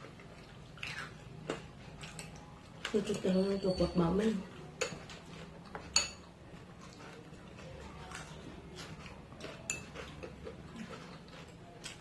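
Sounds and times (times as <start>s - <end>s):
spoon clinking against bowl: 5.9s - 6.3s, 9.6s - 10.2s.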